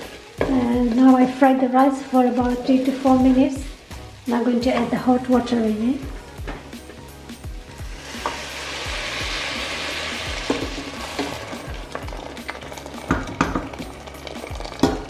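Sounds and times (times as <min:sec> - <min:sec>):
water sizzling in hot oil: 0:00.0 - 0:15.0
utensil knocking on pan: 0:10.4 - 0:11.4, 0:13.0 - 0:13.8.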